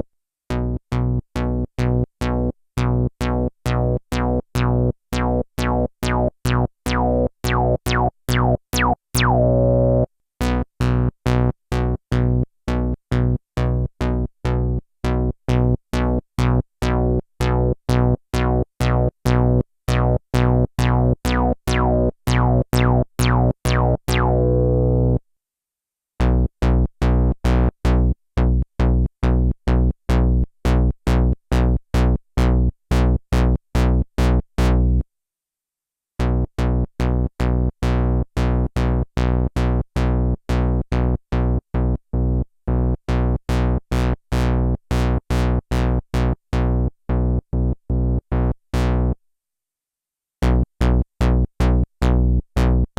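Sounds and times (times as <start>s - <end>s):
synthesizer repeating low note: 6.0s - 10.1s.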